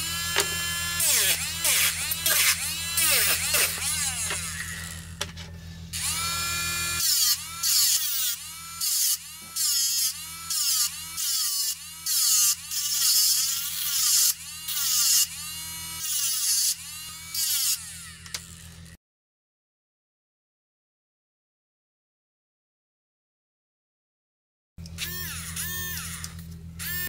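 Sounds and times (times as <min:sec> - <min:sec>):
metal rod grinding on disc: 0:00.0 - 0:05.3
small motor whining: 0:00.0 - 0:19.0, 0:24.9 - 0:27.0.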